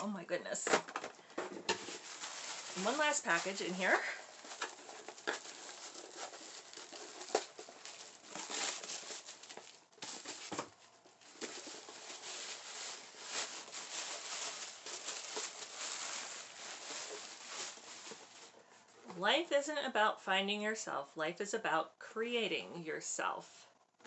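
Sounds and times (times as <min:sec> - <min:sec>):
packaging crinkling and rustling: 0:00.7 - 0:18.9
packaging tearing: 0:01.7 - 0:18.5.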